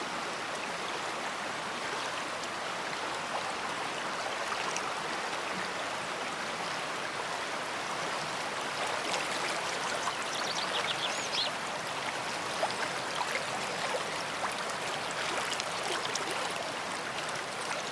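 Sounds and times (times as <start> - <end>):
river flowing: 0.0 - 17.9.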